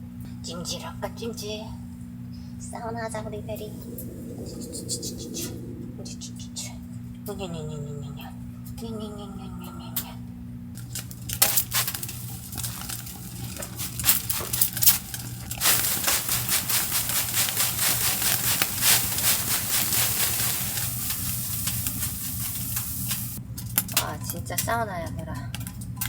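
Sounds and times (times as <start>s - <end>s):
hot sauna stones crackling: 3.0s - 6.2s, 10.7s - 26.0s.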